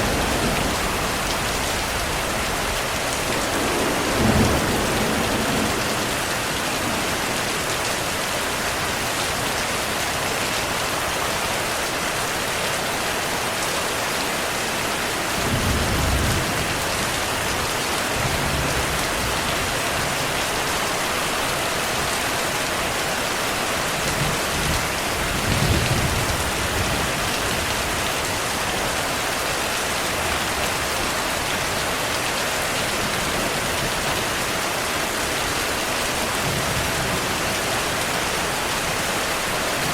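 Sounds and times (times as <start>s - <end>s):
distant thunder rumbles: 0.0s - 8.0s
heavy rain: 0.0s - 39.9s.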